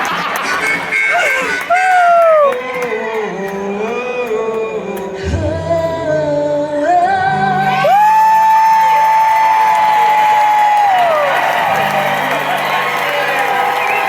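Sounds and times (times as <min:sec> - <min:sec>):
live rock band playing: 0:00.0 - 0:01.8
person singing: 0:00.4 - 0:10.0.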